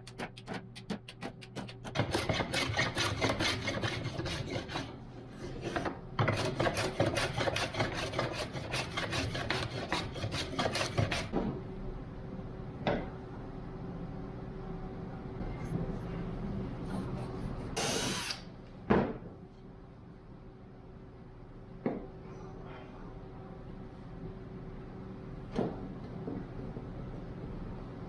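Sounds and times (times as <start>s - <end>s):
hand tool scraping wood: 1.6s - 11.3s.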